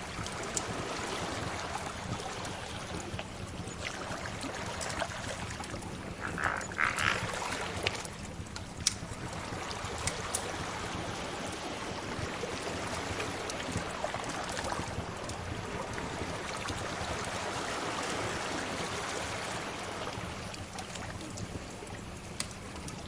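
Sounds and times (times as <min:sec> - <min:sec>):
sea waves washing ashore: 0:00.0 - 0:23.0
wood fire crackling: 0:08.4 - 0:09.2.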